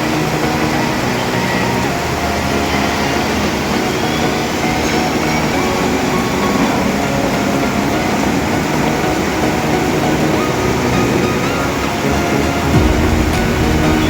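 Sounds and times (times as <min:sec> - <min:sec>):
loud rushing noise: 0:00.0 - 0:14.0
vehicle engines rumbling: 0:00.0 - 0:14.0.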